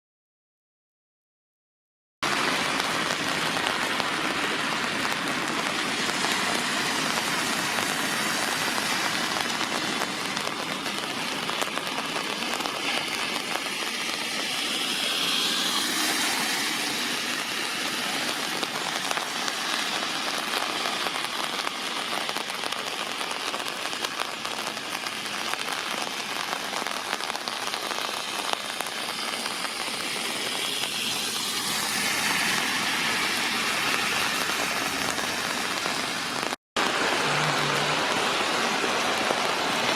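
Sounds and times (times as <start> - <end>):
rain on puddles and wet asphalt: 2.2 - 39.9.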